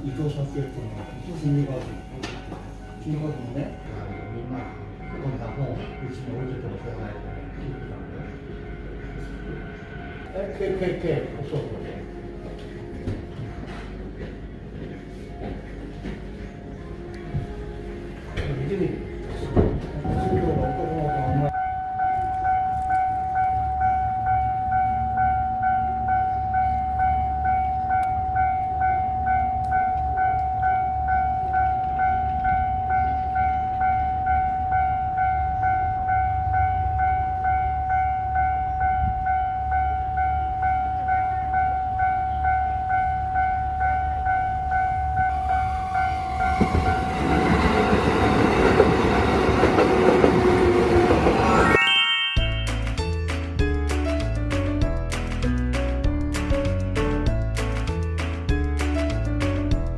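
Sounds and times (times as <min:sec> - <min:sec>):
level-crossing alarm ringing: 0:00.0 - 0:11.0, 0:19.9 - 0:52.9
train rumbling: 0:00.0 - 0:51.8.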